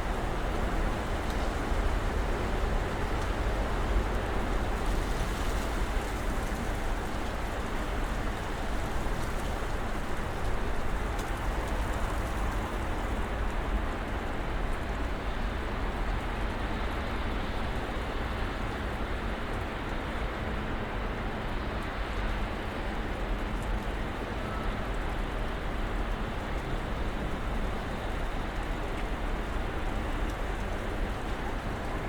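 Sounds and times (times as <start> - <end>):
wind and falling snow hiss: 0.0 - 14.5.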